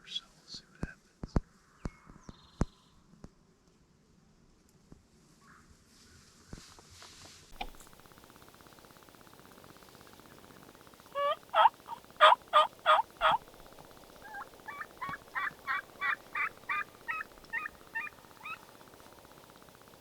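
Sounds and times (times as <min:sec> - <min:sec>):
turkey yelping: 0:11.1 - 0:19.9.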